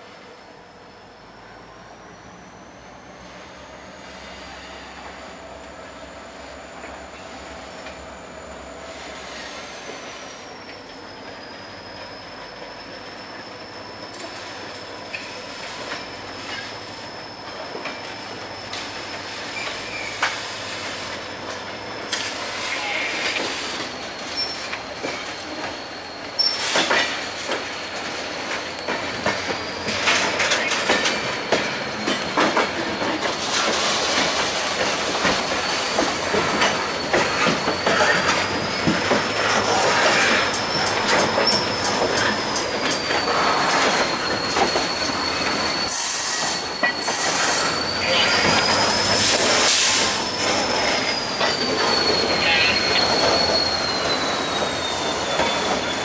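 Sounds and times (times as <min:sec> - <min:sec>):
train wheels squealing on rails: 0:00.0 - 0:56.0
wheels clanking over rail joints: 0:23.2 - 0:56.0.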